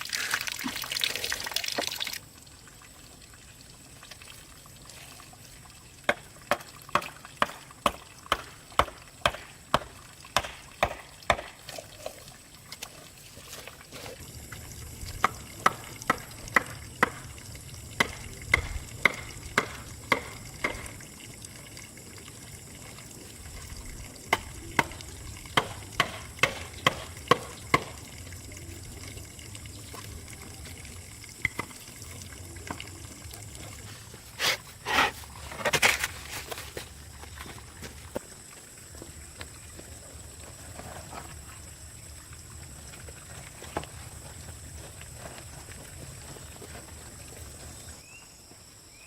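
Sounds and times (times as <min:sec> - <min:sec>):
faint steady background noise: 0:00.0 - 0:49.0
sharp evenly spaced knocks: 0:06.1 - 0:11.6, 0:15.2 - 0:17.3, 0:18.0 - 0:21.0, 0:25.6 - 0:28.0
scraping or splashing noises: 0:10.4 - 0:17.3, 0:32.7 - 0:38.2.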